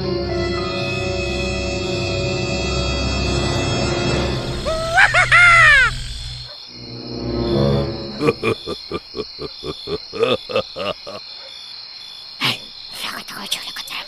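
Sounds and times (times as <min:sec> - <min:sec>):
high cricket-like trill: 0:00.6 - 0:14.0
short repeated animal calls: 0:04.4 - 0:06.6.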